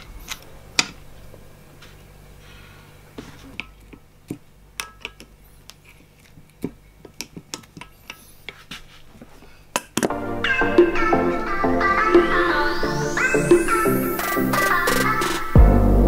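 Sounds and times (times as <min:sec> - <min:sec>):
music: 0:10.1 - 0:16.0.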